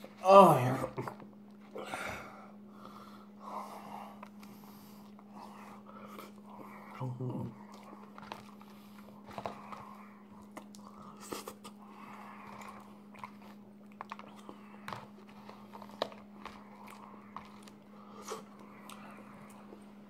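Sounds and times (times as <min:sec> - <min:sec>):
steady low hum: 0:00.0 - 0:20.0
close-up chewing: 0:04.0 - 0:20.0.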